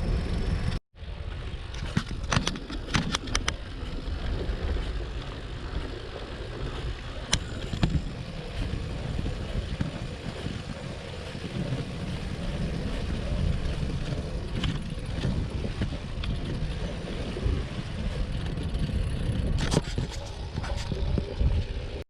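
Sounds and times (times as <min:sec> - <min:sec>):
bicycle tyres on road: 0:00.0 - 0:22.0
wind on microphone: 0:00.0 - 0:22.0
bike rattling clicks: 0:01.7 - 0:05.9, 0:06.6 - 0:10.6, 0:11.6 - 0:17.3, 0:18.0 - 0:21.3.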